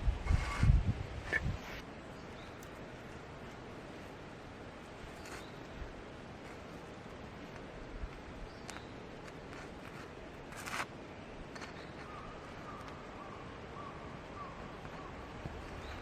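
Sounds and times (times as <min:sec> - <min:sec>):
brief rustle: 0:05.1 - 0:05.8, 0:08.6 - 0:10.9.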